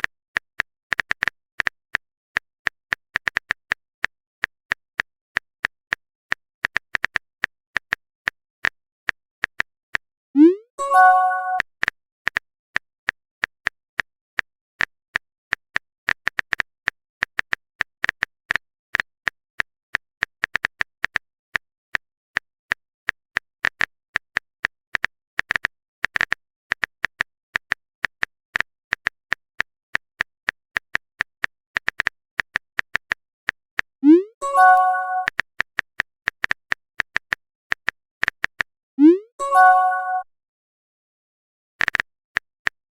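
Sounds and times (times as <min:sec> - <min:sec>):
phone keyboard typing clicks: 0:23.1 - 0:35.8.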